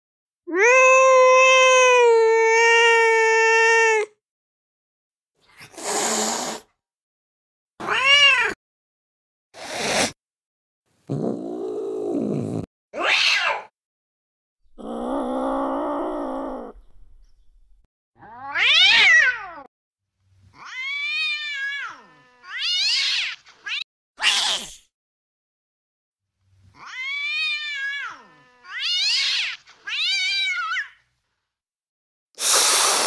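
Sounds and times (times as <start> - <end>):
cat meowing: 0.5 - 4.1, 7.8 - 8.6, 18.2 - 19.7, 20.6 - 24.7, 26.8 - 31.0
angry cat yowling: 0.5 - 4.2, 7.8 - 8.6, 13.0 - 13.7, 14.7 - 16.9, 18.2 - 19.7, 26.8 - 31.0
cat hissing: 5.6 - 6.7, 9.6 - 10.2, 24.2 - 24.9, 32.4 - 33.0
cat growling: 11.1 - 13.2, 14.7 - 17.2.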